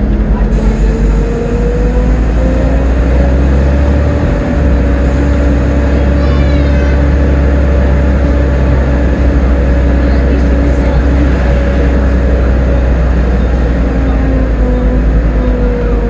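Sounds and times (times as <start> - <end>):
bus engine rumbling with whine: 0.0 - 16.0.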